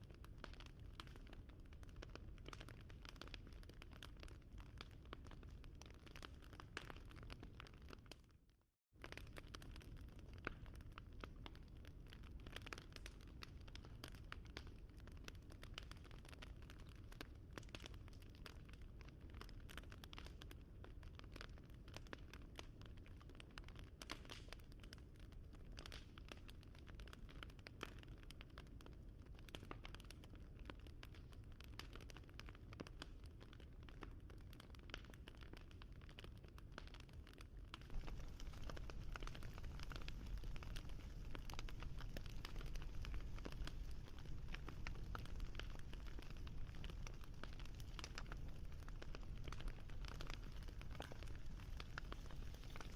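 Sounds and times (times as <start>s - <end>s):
wood fire crackling: 0.1s - 8.2s, 9.0s - 52.9s
low steady rumble: 37.9s - 52.6s.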